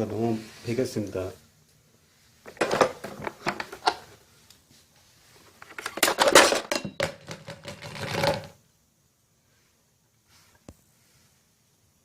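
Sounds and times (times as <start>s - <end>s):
hard parts clattering and clinking: 2.5s - 4.1s, 5.6s - 8.6s.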